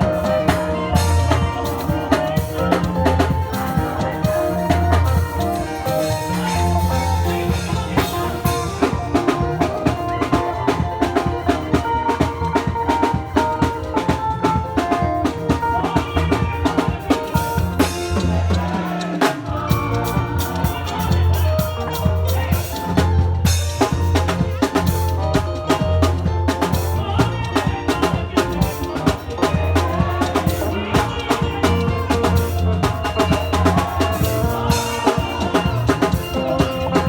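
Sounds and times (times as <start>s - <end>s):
drum kit beat: 0.0s - 37.0s
heavy bass line: 0.0s - 37.0s
praise band playing: 0.0s - 37.0s.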